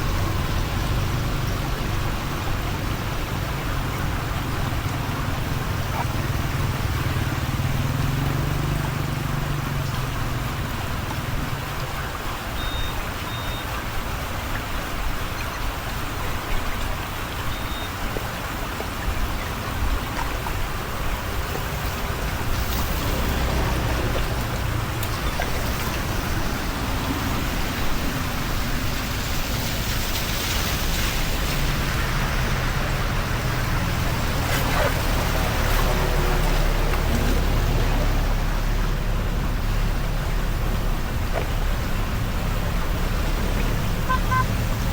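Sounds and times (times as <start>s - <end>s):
rain and running water: 0.0s - 44.9s
short high beeps: 12.6s - 13.7s, 44.1s - 44.5s.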